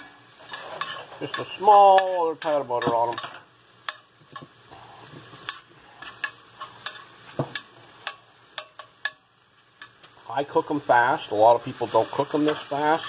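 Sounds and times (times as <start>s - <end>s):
mushrooms sizzling in butter: 0.0s - 13.0s
utensil tapping against pan: 6.8s - 9.2s.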